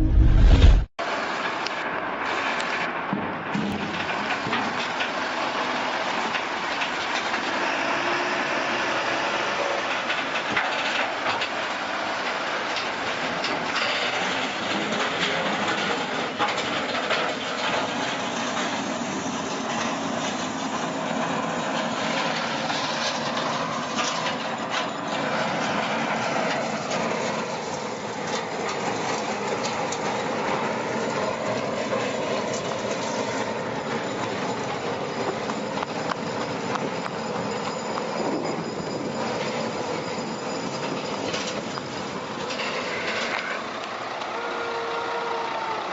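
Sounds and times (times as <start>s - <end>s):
mechanical clatter and rumble: 0.0s - 0.9s, 9.8s - 44.3s.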